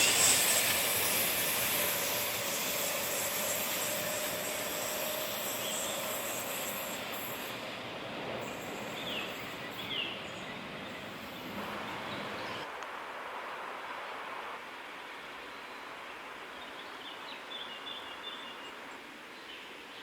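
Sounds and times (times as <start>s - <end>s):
train rolling on rails: 0.0s - 12.7s
high rail hiss: 0.0s - 14.7s.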